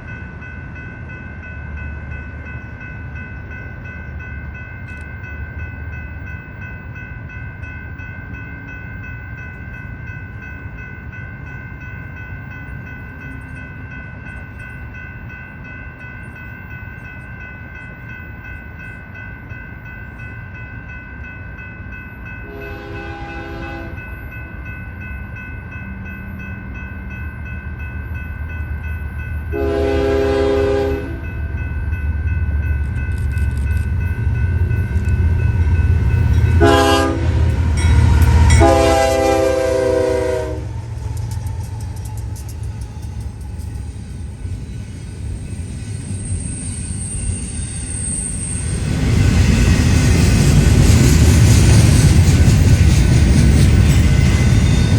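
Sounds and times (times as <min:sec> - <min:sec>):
crossing bell ringing: 0:00.0 - 0:54.9
train rumble: 0:00.0 - 0:54.9
locomotive horn blasts: 0:22.4 - 0:24.0, 0:29.5 - 0:31.2, 0:36.6 - 0:37.6, 0:38.4 - 0:40.8.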